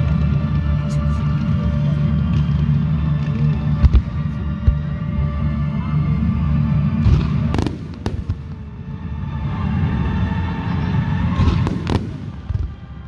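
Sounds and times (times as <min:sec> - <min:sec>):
fireworks bursting with bangs: 0:07.2 - 0:08.8, 0:11.4 - 0:13.0
loud background music: 0:11.4 - 0:13.0.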